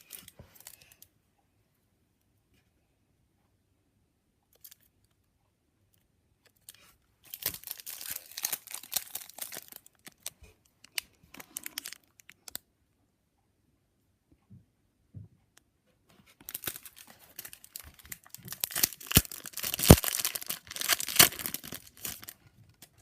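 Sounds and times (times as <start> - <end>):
wrapper tearing and crinkling: 7.3 - 10.3, 10.9 - 12.0, 16.4 - 22.4.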